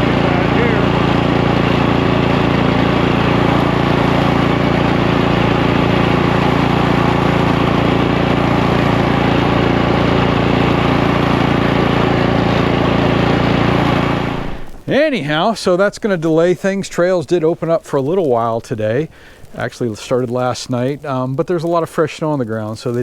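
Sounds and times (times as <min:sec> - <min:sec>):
snow blower engine running: 0:00.0 - 0:16.8.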